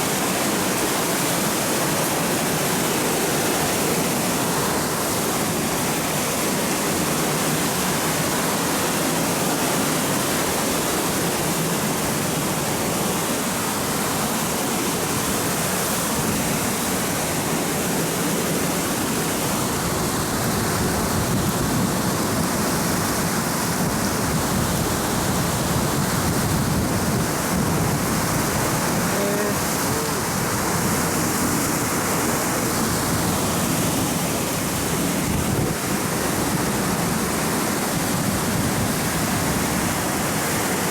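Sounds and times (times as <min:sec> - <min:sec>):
river rushing: 0:00.0 - 0:40.9.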